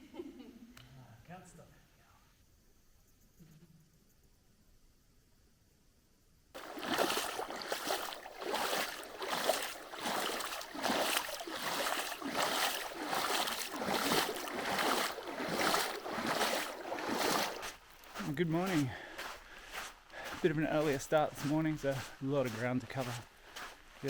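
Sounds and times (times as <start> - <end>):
footsteps splashing through river: 6.6 - 24.0.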